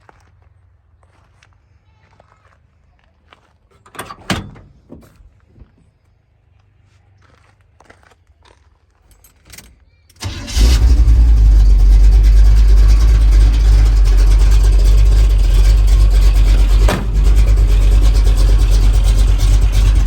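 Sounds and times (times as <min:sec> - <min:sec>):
pickup engine starting and rumbling: 0:10.2 - 0:20.0.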